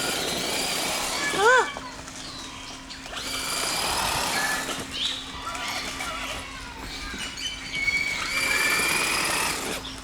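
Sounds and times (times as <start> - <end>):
birds whistling and chirping: 2.2 - 10.0.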